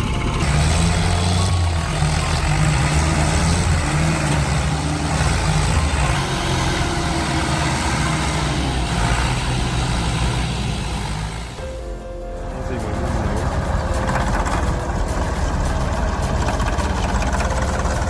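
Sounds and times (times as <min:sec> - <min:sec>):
heavy vehicle engine running: 0:00.0 - 0:18.0.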